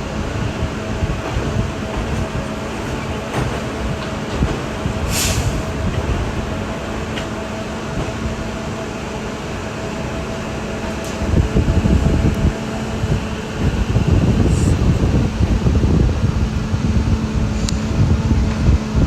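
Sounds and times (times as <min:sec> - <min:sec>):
loud rumble: 0:00.0 - 0:19.0
track maintenance machine hum: 0:00.0 - 0:19.0
short sharp hiss: 0:05.1 - 0:05.6.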